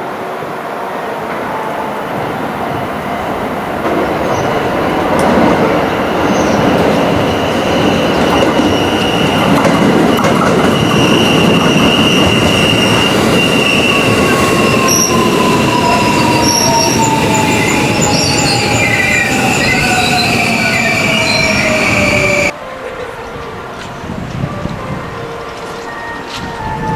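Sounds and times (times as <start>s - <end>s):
train wheels rumbling: 0.0s - 26.9s
train brakes: 3.3s - 22.5s.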